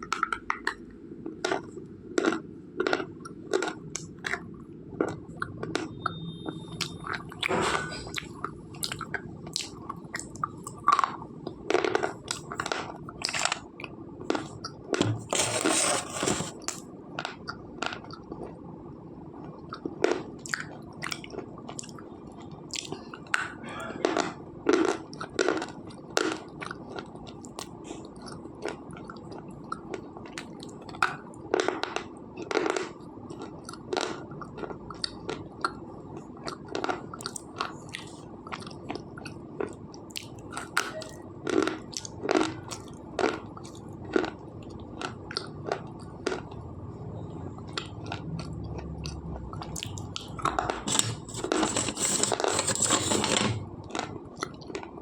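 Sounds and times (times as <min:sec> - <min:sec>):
crunchy chewing: 0:01.4 - 0:06.0, 0:47.7 - 0:54.9.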